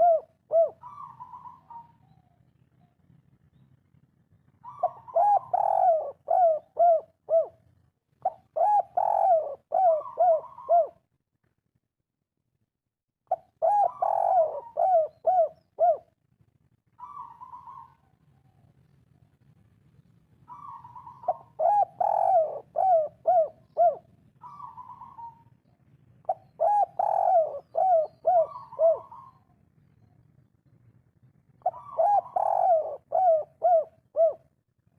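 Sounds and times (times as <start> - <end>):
dove cooing: 0.0 - 2.4, 4.6 - 7.6, 8.2 - 11.0, 13.3 - 16.1, 17.0 - 18.2, 20.5 - 25.6, 26.2 - 30.1, 31.6 - 34.6.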